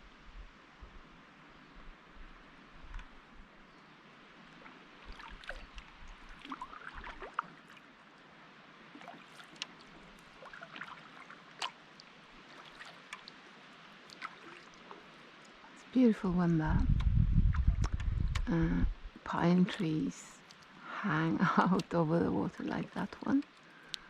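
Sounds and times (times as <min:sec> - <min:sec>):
paddle splashing water: 0:04.4 - 0:15.9.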